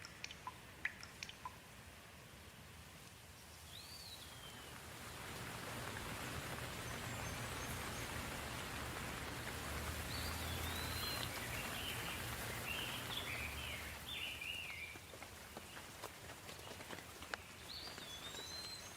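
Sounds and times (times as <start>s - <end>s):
soft rain falling: 0.0s - 18.9s
bird chirping: 10.1s - 15.0s, 17.3s - 18.9s.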